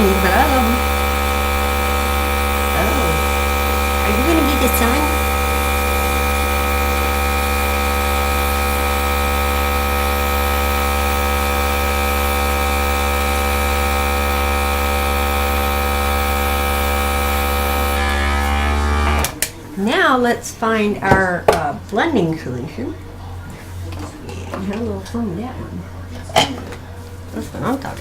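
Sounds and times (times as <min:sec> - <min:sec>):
electric air gun motor hum: 0:00.0 - 0:19.4.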